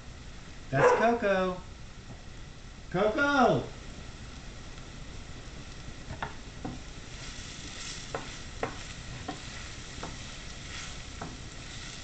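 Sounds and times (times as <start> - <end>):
dog barking in sharp yips: 0.8 - 1.2
food sizzling in a frying pan: 1.8 - 12.0.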